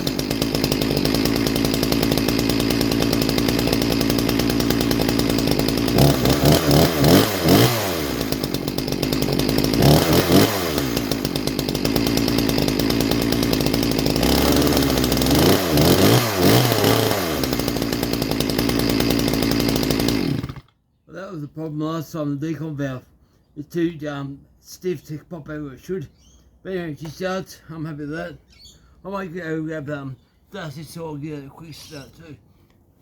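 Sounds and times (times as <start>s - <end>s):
chainsaw revving: 0.0s - 20.7s.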